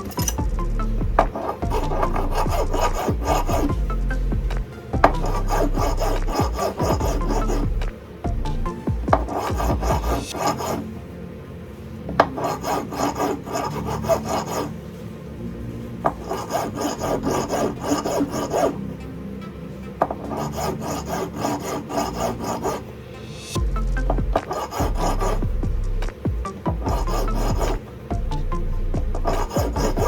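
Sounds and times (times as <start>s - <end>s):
file rasping on metal ring: 1.2s - 4.3s, 5.0s - 7.9s, 16.3s - 18.8s, 24.0s - 25.5s, 26.8s - 27.8s, 29.1s - 30.0s.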